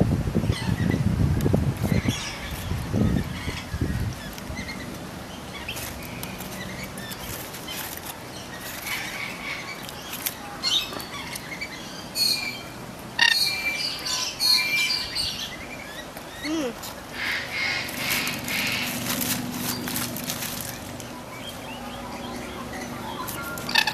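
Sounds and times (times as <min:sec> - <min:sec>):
low outdoor background: 0:00.0 - 0:23.9
birds chirping: 0:01.8 - 0:23.9.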